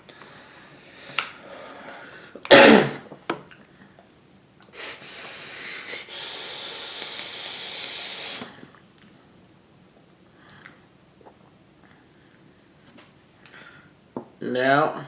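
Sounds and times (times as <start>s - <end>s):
person exhaling vape vapour: 4.7s - 8.7s.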